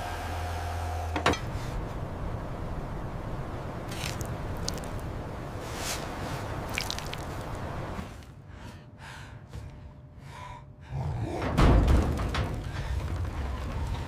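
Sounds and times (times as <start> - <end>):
rushing noise with low rumble: 1.3 - 8.4.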